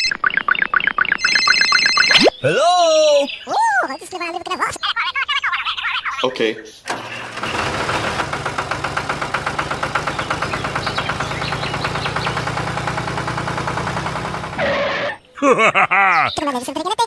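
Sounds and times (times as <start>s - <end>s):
engine idling with chugging beat: 7.0s - 14.6s.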